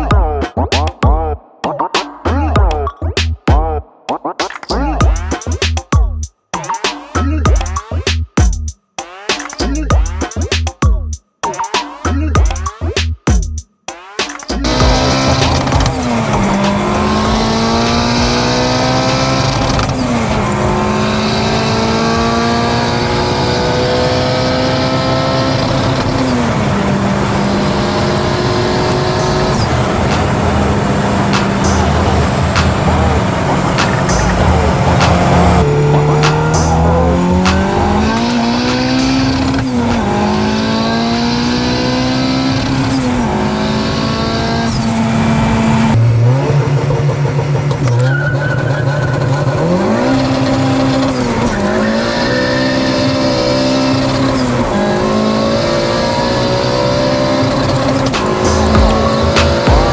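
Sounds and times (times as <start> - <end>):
car engine running: 14.5 - 51.8, 53.0 - 59.9.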